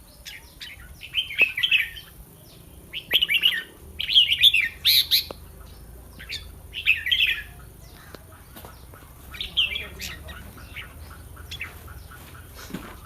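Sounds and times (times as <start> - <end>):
bird warbling song: 0.0 - 13.0.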